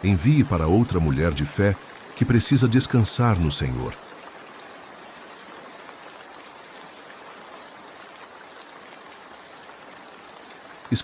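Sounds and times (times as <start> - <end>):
steady rain hiss: 0.0 - 11.0.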